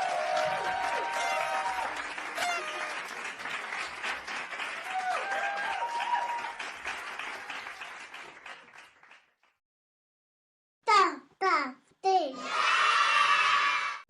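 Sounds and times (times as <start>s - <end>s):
children clapping and cheering: 0.0s - 9.6s.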